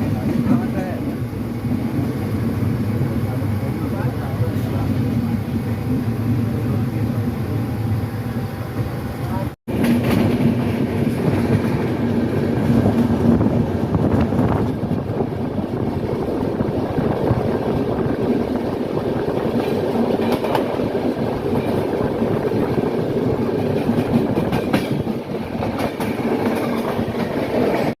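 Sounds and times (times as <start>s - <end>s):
train rumbling on track: 0.0s - 28.0s
wheels clicking over rail joints: 18.2s - 27.9s.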